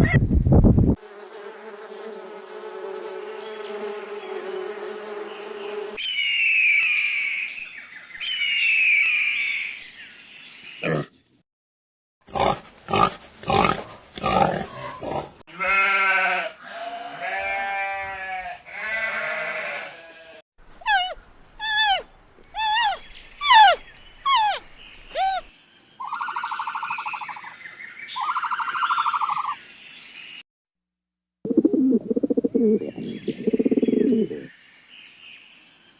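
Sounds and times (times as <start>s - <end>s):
animal grunting: 10.8s - 11.1s, 12.3s - 15.4s
animal bleats: 12.3s - 22.0s
falling animal calls: 20.8s - 27.4s
steady animal calls: 20.8s - 27.4s.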